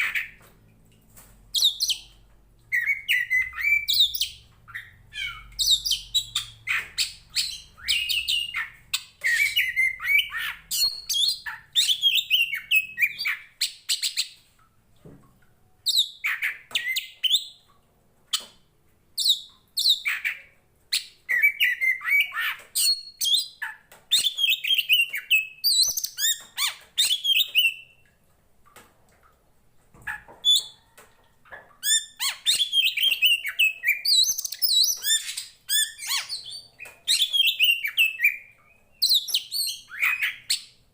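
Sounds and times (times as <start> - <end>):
songbird singing whistles and trills: 1.5 - 14.4, 19.2 - 28.0, 31.8 - 40.8.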